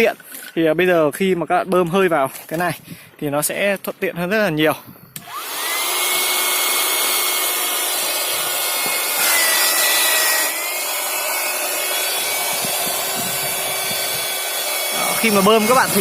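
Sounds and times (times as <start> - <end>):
electric air pump whirring: 5.1 - 16.0.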